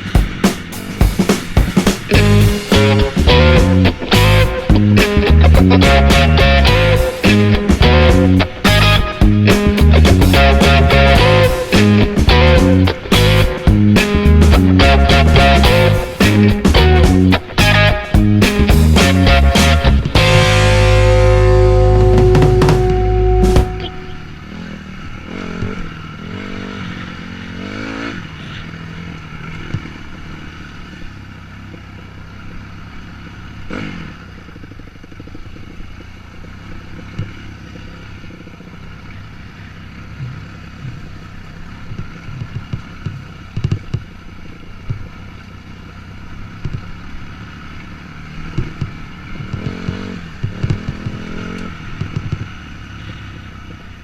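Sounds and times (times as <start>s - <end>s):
dirt bike engine revving: 0.0s - 43.5s, 46.8s - 53.8s
bike knocks and rattles: 41.9s - 44.1s, 48.5s - 52.7s.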